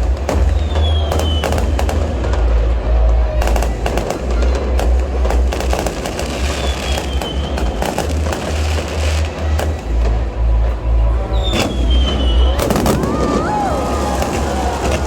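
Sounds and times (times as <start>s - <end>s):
fireworks bangs and crackles: 0.0s - 15.0s
falling firework whistle: 0.1s - 2.5s, 5.7s - 9.8s, 11.3s - 15.0s.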